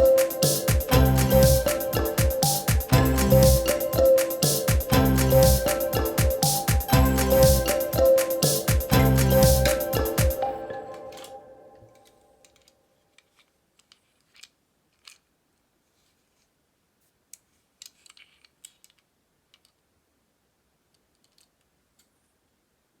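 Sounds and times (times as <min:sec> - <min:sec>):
toy cars clicking and tapping: 0:12.0 - 0:15.3, 0:17.3 - 0:19.9, 0:20.9 - 0:22.2.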